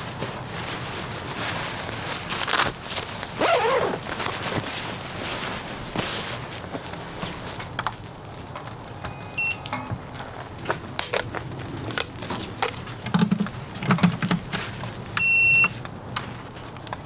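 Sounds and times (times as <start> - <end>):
small clicks and knocks: 7.6 - 17.0
high electronic beep: 9.1 - 9.9.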